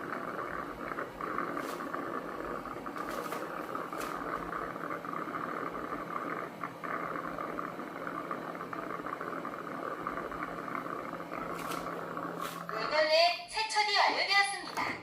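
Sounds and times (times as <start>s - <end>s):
low motor hum: 0.0s - 13.3s
robot vacuum station whirring: 0.0s - 13.5s.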